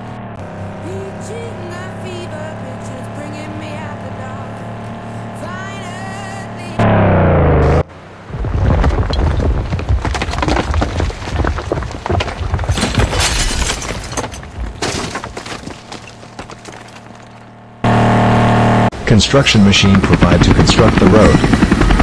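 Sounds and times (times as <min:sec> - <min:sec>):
crashing and breaking: 0:08.3 - 0:17.7.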